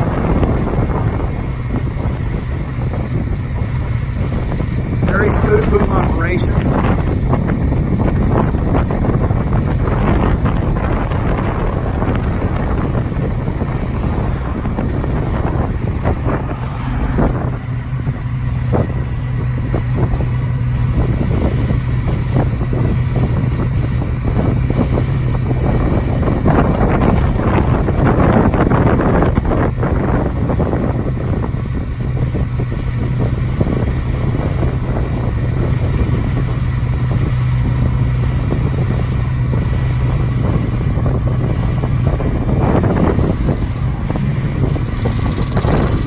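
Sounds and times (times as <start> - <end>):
diesel motor running: 0.0 - 46.0
wind buffeting microphone: 0.0 - 46.0.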